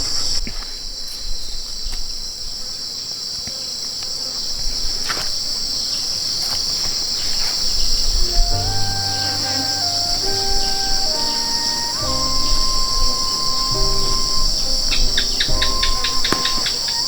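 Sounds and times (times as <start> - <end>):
insects chirring: 0.0 - 17.0
background music with held notes: 8.3 - 17.0.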